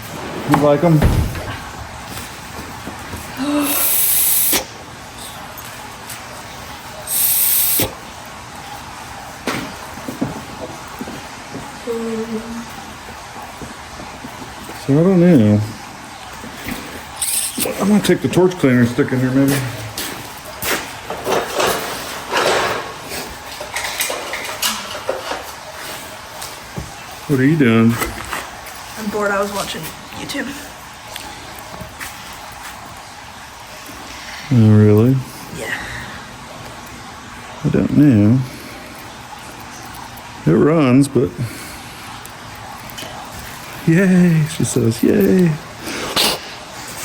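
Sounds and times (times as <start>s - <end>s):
aerosol spray hissing: 3.6s - 4.7s, 7.1s - 7.9s.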